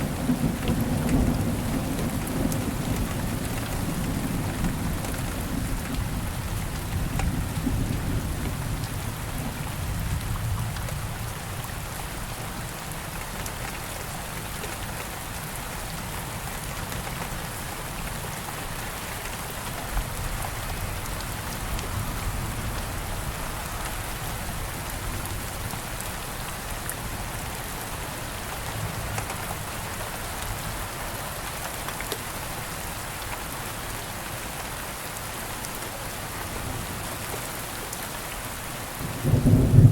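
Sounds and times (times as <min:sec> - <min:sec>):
steady rain falling: 0:00.0 - 0:39.9
distant thunder rumble: 0:39.0 - 0:39.9.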